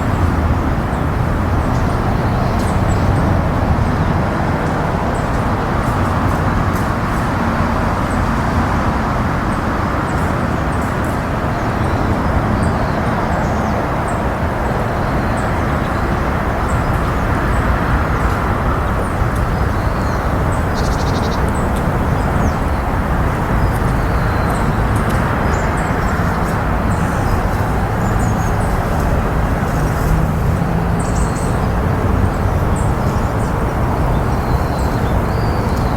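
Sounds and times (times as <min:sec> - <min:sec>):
distant road traffic roar: 0:00.0 - 0:35.9.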